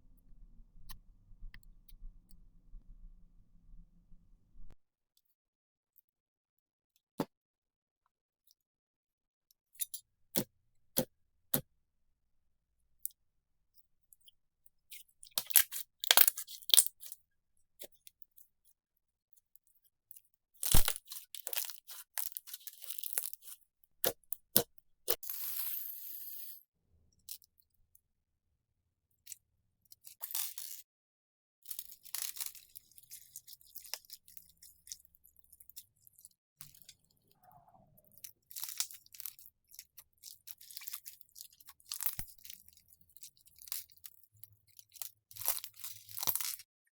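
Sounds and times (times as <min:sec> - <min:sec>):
slime crackling and crunching: 0:20.6 - 0:23.6, 0:44.8 - 0:46.6
slime popping: 0:20.7 - 0:21.6.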